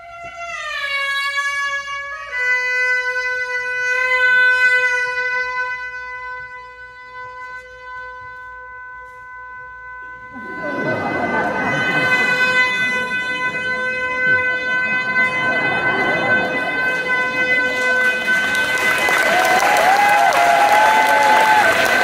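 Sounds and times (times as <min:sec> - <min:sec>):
suona playing long note: 0:02.1 - 0:22.0
rough noisy burst: 0:10.4 - 0:22.0.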